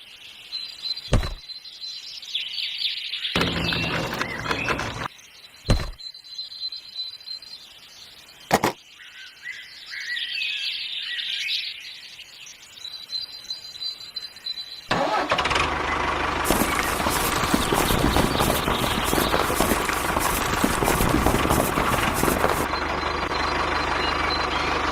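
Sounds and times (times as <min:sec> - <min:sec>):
sharp knocks: 0:01.1 - 0:01.4, 0:05.7 - 0:06.0, 0:08.5 - 0:08.8
motor running with rattling: 0:03.4 - 0:05.1, 0:14.9 - 0:24.9.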